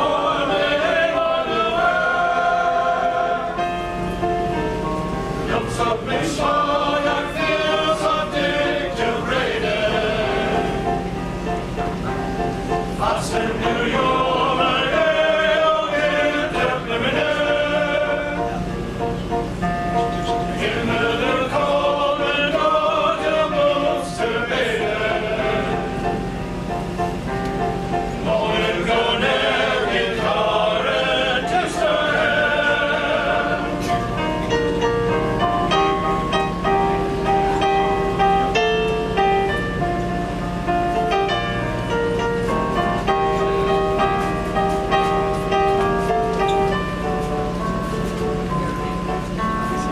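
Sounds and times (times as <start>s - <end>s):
male chorus singing: 0.0s - 4.0s, 5.4s - 11.1s, 12.9s - 18.8s, 20.3s - 26.3s, 28.2s - 34.4s
instrumental accompaniment: 0.0s - 49.9s.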